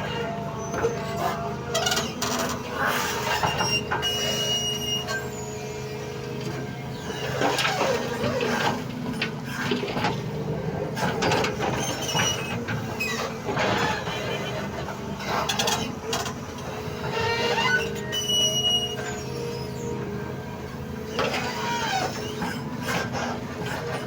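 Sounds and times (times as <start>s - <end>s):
excavator knocks and scrapes: 6.3s - 19.5s.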